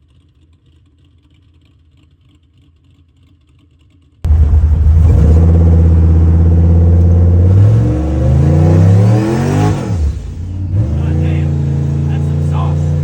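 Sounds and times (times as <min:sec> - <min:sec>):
pickup truck engine revving: 0:04.3 - 0:13.0.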